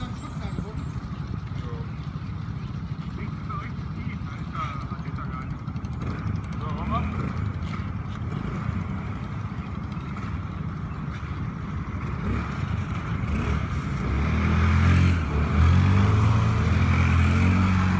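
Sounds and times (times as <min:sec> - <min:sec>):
water: 0:00.0 - 0:17.4
boat engine rumbling: 0:00.0 - 0:17.9
wind: 0:00.0 - 0:17.9.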